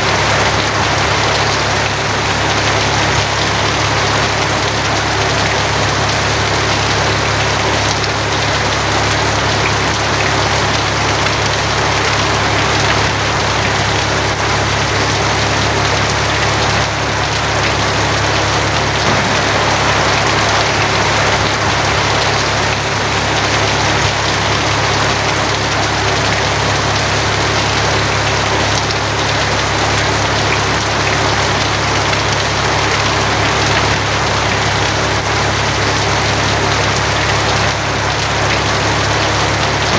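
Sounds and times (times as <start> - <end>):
rain on a tin roof: 0.0 - 39.9
constant low rumble: 15.9 - 26.4.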